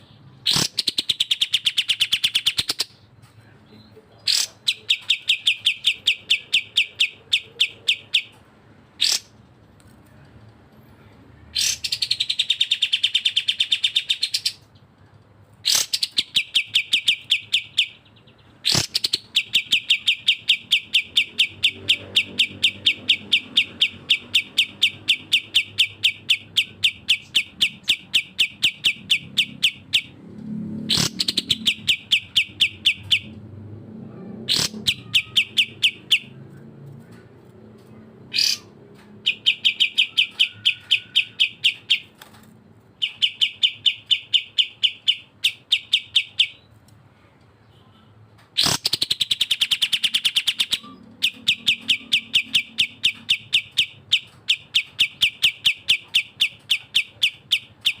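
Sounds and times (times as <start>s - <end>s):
sharp upswept bird calls: 0.4s - 3.1s, 4.2s - 8.4s, 9.0s - 9.4s, 15.6s - 30.2s, 30.9s - 33.4s, 34.5s - 36.4s, 38.3s - 42.3s, 43.0s - 46.8s, 47.8s - 58.0s
songbirds chattering in rapid trills: 34.5s - 36.4s, 37.9s - 42.3s, 48.6s - 58.0s.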